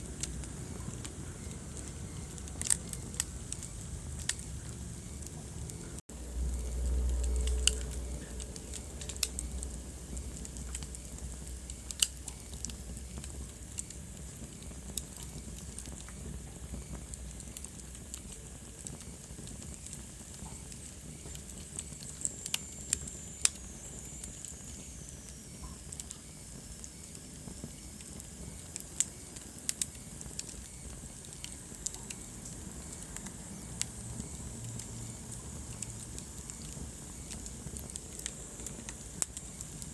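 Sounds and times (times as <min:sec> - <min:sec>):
low rumble: 0:00.0 - 0:11.7
wood fire crackling: 0:00.0 - 0:39.9.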